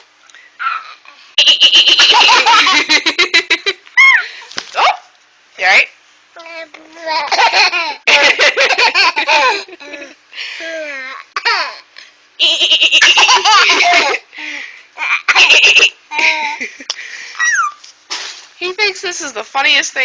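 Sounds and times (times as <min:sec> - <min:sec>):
baby laughing: 0:00.6 - 0:03.5, 0:07.1 - 0:10.2, 0:10.8 - 0:14.2, 0:15.0 - 0:16.7, 0:17.4 - 0:17.8.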